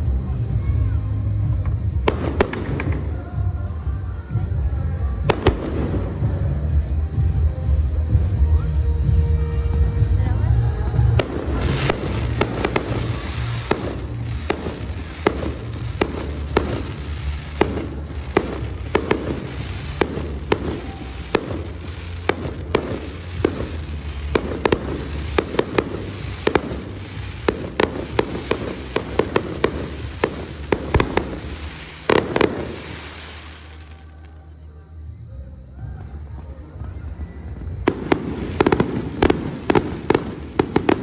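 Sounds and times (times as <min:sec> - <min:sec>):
fireworks popping and banging: 0:01.5 - 0:03.6, 0:05.2 - 0:06.6, 0:10.9 - 0:34.3, 0:37.6 - 0:41.0.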